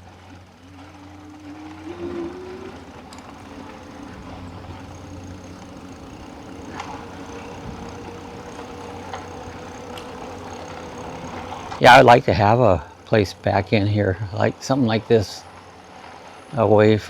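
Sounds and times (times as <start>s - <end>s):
tyre and road noise: 0.0s - 13.0s
electric bike motor whining: 0.0s - 17.0s.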